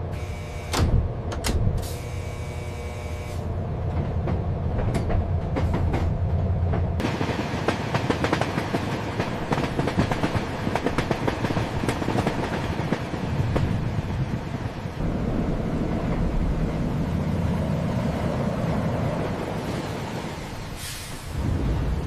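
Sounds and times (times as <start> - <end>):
train rumbling on rails: 0.0 - 22.0
train wheels clicking and clacking: 3.9 - 13.9.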